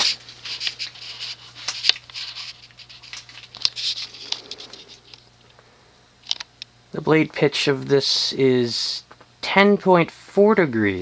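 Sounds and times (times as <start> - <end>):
ceiling fan motor buzzing: 0.0 - 11.0.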